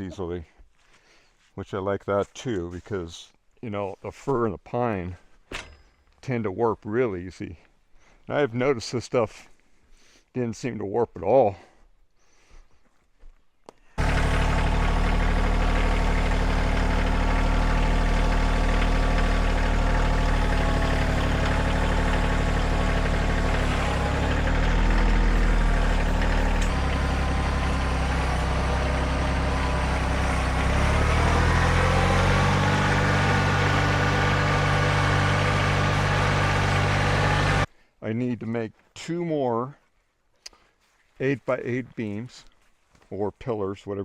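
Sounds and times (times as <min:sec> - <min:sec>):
engine running: 0:14.0 - 0:37.7.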